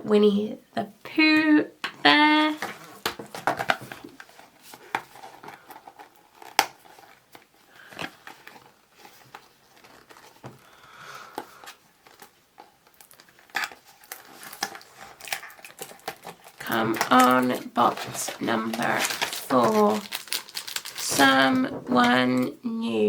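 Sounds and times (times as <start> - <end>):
packaging crinkling: 2.7 - 21.6.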